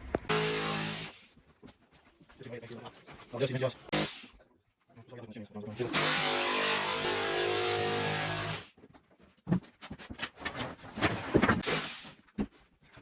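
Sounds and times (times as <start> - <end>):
power tool motor running: 0.3 - 1.1, 5.8 - 8.6.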